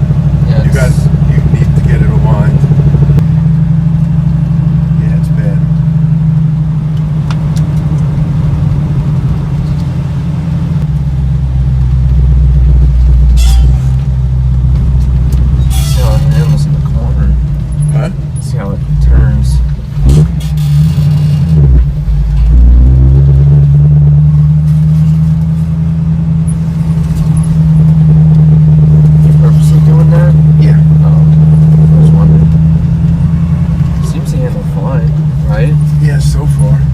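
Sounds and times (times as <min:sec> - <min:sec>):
car engine driving: 0:00.0 - 0:36.9.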